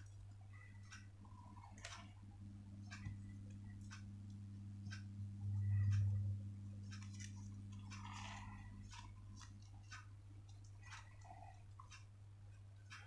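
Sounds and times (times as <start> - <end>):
low electrical hum: 0.0 - 13.0
paper crinkling while folding: 6.9 - 11.3.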